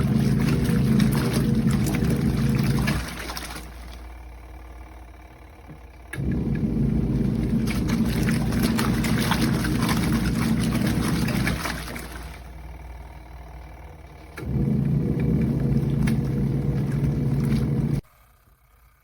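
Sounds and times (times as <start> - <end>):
water churning: 0.0 - 4.3, 6.2 - 12.8, 14.2 - 18.0
washing machine motor humming: 0.0 - 18.6.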